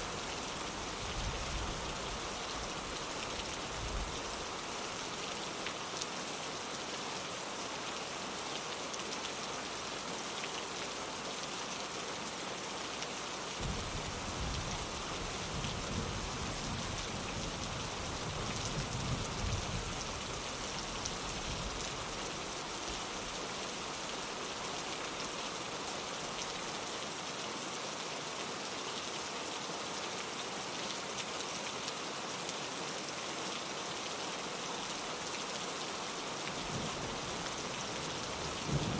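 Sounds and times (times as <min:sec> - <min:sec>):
rain pattering on a window: 0:00.2 - 0:27.2, 0:27.8 - 0:38.9
low rumble of thunder: 0:13.6 - 0:20.0, 0:38.6 - 0:38.9.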